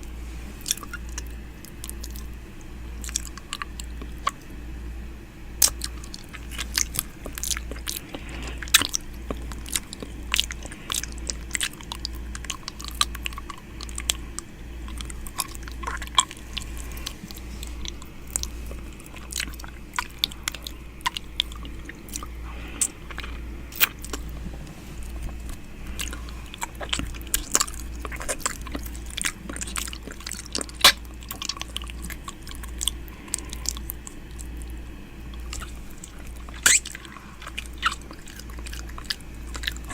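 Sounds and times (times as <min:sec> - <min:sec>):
lips and tongue licking: 0:00.6 - 0:04.5, 0:05.6 - 0:39.9
wet mouth clicks and smacks: 0:03.0 - 0:04.4, 0:25.0 - 0:34.6, 0:35.4 - 0:39.9.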